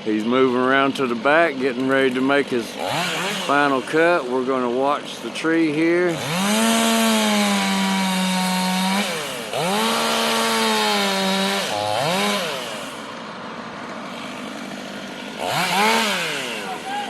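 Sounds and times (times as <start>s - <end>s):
chainsaw cutting tree trunk: 0.0s - 17.0s.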